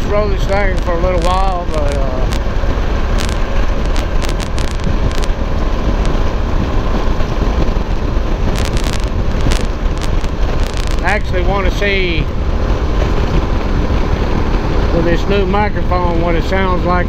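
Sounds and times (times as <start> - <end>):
short crackles: 0.0 - 6.3, 7.1 - 12.2
motorcycle engine rumble: 0.0 - 17.0
wind rushing over microphone: 0.0 - 17.0.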